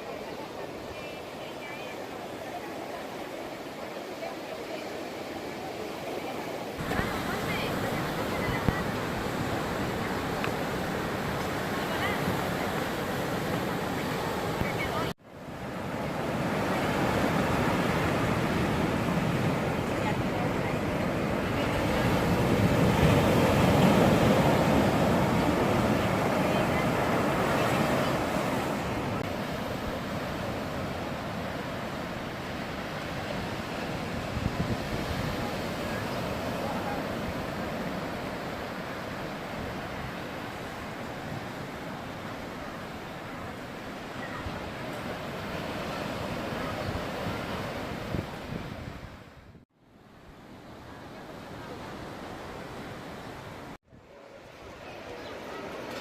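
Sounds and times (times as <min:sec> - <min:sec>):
waves breaking: 0:00.0 - 0:49.4
wind buffeting microphone: 0:16.2 - 0:49.6.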